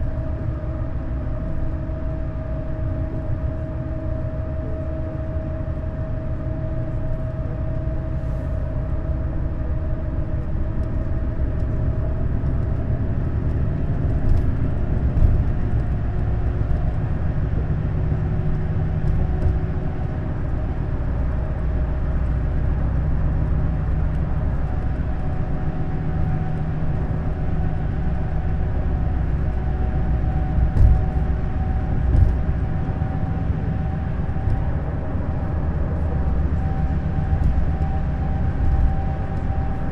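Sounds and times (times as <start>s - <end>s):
coach engine and road drone: 0.0s - 39.9s
faint whine: 18.8s - 39.9s
road thumps: 30.5s - 32.7s.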